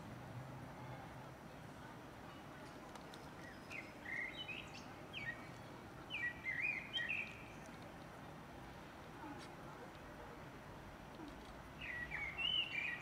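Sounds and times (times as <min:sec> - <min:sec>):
outdoor background noise: 0:00.0 - 0:13.0
small birds chirping: 0:03.2 - 0:08.0, 0:11.2 - 0:13.0.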